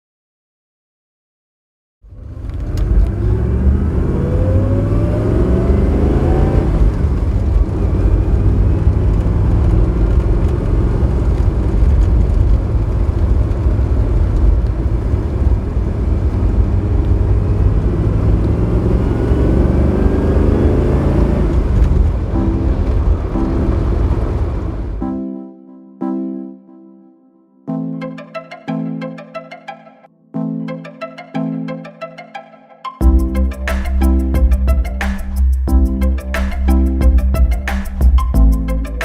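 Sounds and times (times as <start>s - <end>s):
car engine accelerating: 2.0s - 25.0s, 33.0s - 39.0s.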